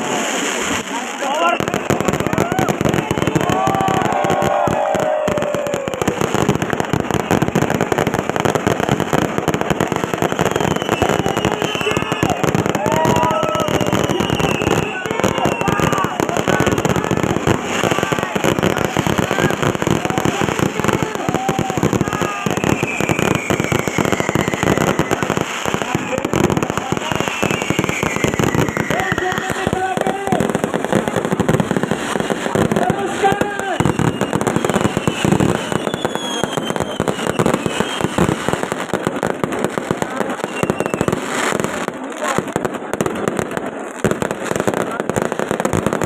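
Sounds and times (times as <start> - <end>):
fireworks crackling: 0.0 - 46.0
falling firework whistle: 1.5 - 30.5, 31.4 - 41.6
faint falling whistles: 10.2 - 12.4, 27.1 - 29.1, 33.8 - 38.2, 40.4 - 41.2.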